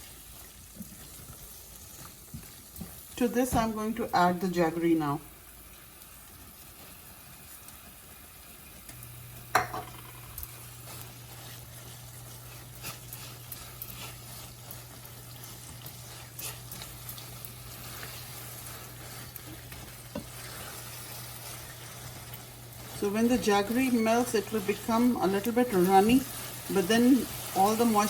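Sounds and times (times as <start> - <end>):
faint sizzle: 0.0 - 28.0
utensil knocking on pan: 9.5 - 10.3
spatula scraping a pan: 9.6 - 28.0.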